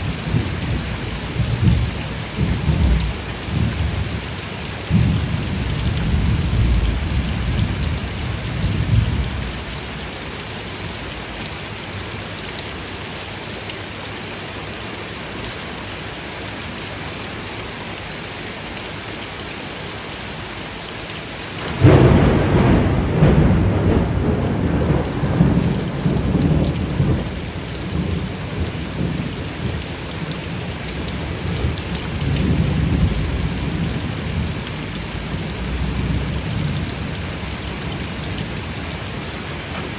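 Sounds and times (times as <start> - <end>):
thunder rumbling: 0.0 - 4.2, 4.9 - 9.7, 21.6 - 39.9
steady rain falling: 0.0 - 39.9
loud thunderclap: 4.9 - 9.4, 21.6 - 29.8, 31.5 - 37.5.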